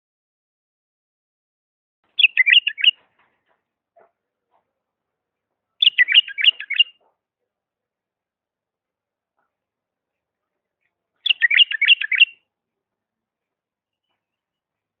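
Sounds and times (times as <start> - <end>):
bird singing warbled notes: 2.2 - 3.0, 5.8 - 7.0, 11.2 - 12.4.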